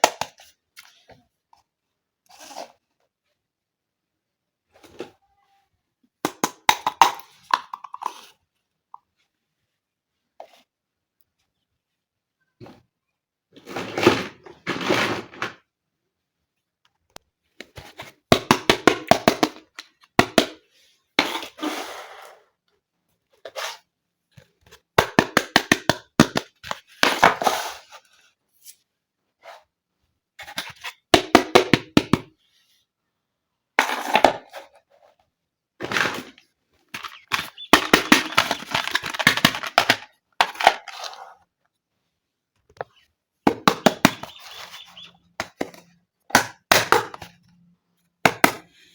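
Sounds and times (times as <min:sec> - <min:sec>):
plastic toy pieces clicking: 0:37.0 - 0:40.6.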